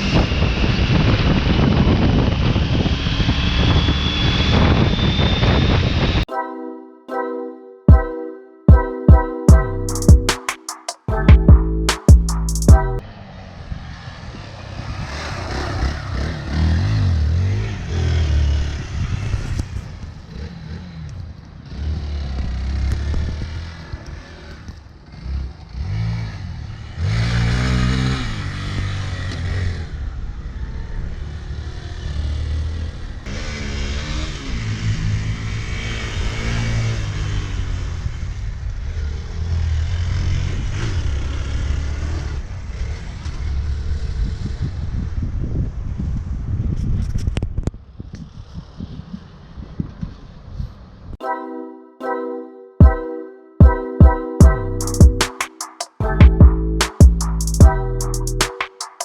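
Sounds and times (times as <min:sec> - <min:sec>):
motorcycle engine revving: 0:13.1 - 0:45.3.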